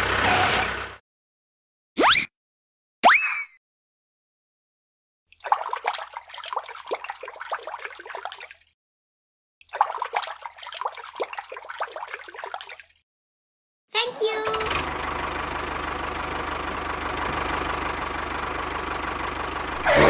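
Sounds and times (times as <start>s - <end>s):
gurgling splashing water: 5.3s - 8.7s, 9.6s - 13.0s.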